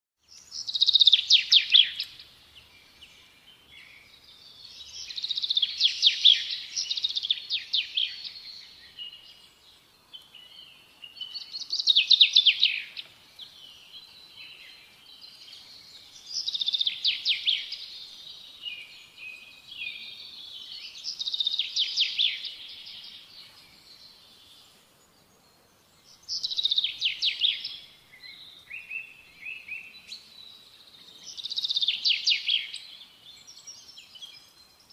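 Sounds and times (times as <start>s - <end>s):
quiet bird chirps: 0.2s - 34.9s.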